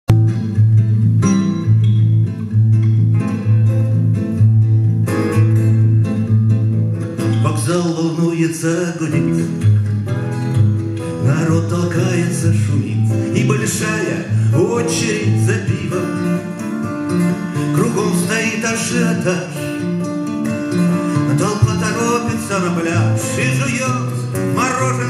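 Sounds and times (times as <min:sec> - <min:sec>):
acoustic guitar playing: 0:00.1 - 0:25.0
person singing: 0:07.2 - 0:09.7, 0:11.1 - 0:16.6, 0:17.3 - 0:19.8, 0:20.8 - 0:25.0.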